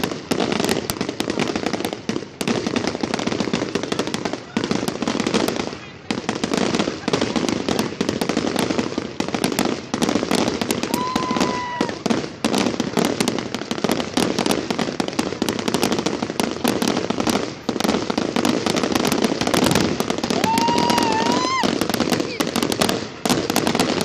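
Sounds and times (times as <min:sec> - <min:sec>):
fireworks crackling and banging: 0:00.0 - 0:24.0
firework whistle: 0:09.4 - 0:13.3, 0:17.2 - 0:24.0.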